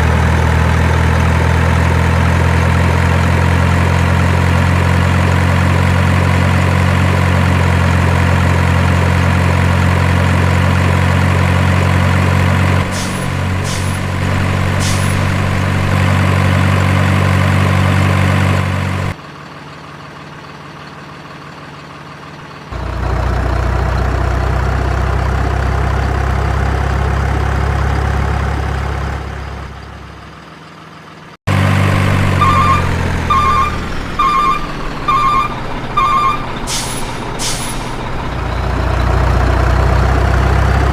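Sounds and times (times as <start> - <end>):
diesel truck engine idling: 0.0 - 40.9
truck reversing beeper: 12.3 - 18.6, 31.5 - 40.9
air-brake hisses: 12.9 - 15.4, 36.7 - 38.2.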